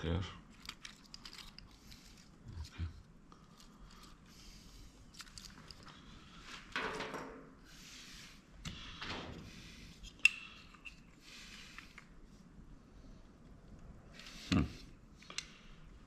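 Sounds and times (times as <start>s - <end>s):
light clicks of plastic parts: 0.5s - 2.2s, 15.2s - 15.6s.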